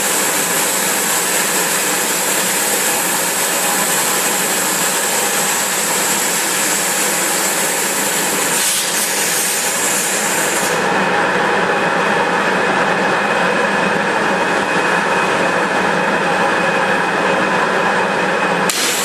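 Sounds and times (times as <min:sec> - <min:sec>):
high-pressure water jet hissing: 0:00.0 - 0:10.9, 0:18.7 - 0:19.0.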